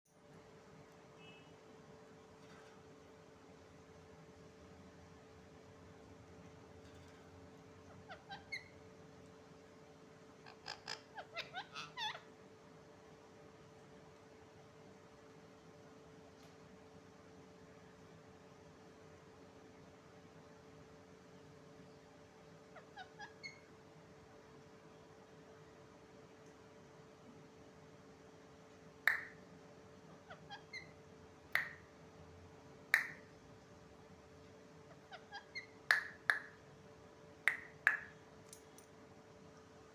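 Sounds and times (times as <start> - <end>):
parrot squeaky chirps: 7.9 - 8.8, 10.4 - 12.3, 22.7 - 23.7, 30.1 - 31.0, 31.6 - 31.9, 34.9 - 36.6.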